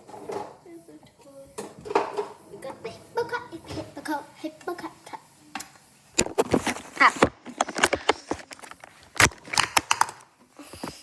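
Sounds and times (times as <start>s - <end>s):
knocks and clatter of handled objects: 6.2s - 11.0s.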